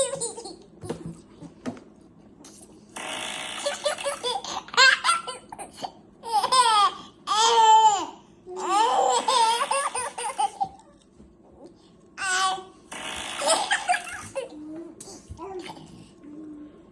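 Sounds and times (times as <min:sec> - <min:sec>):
baby laughing: 0:00.0 - 0:01.0, 0:03.6 - 0:11.0, 0:13.4 - 0:14.6.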